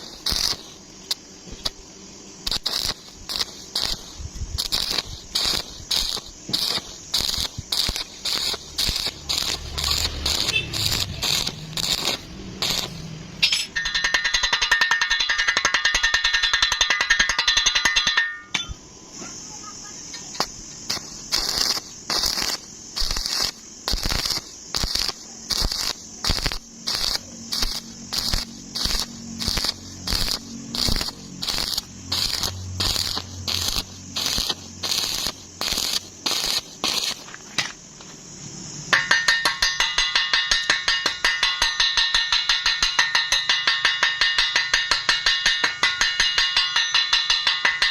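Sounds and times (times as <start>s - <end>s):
arc welding crackling: 0.0s - 18.2s, 19.3s - 38.4s.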